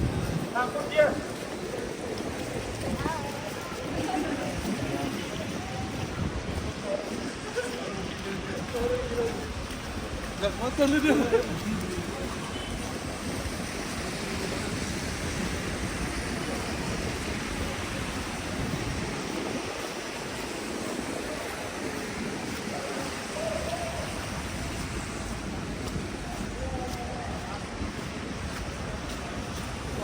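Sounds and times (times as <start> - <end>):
faint distant voices: 0.0 - 30.0
rushing city street ambience: 0.0 - 30.0.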